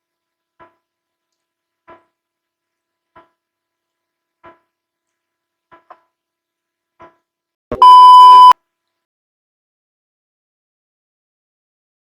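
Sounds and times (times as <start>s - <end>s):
steady electronic beep: 7.7s - 8.6s.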